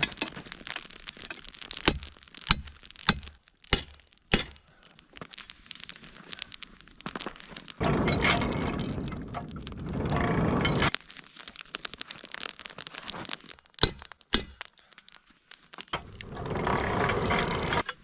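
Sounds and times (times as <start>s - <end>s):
charcoal fire crackling and popping: 0.0s - 18.0s
sharp loud cracks: 1.3s - 4.8s.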